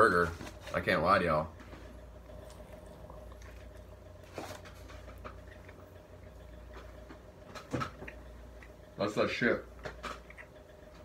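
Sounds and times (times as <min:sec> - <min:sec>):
low room hum: 0:00.0 - 0:11.0
person chewing: 0:02.0 - 0:09.0, 0:09.7 - 0:11.0.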